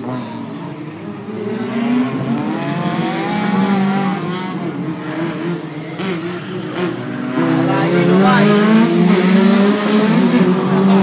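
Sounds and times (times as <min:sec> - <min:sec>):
race car engines: 0:00.0 - 0:11.0.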